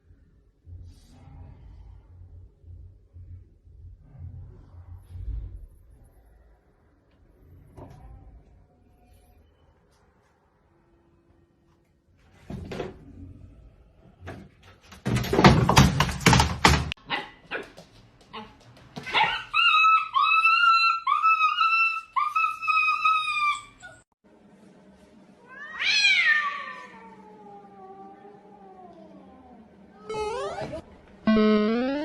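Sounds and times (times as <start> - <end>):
clattering and thumping: 14.2 - 17.0.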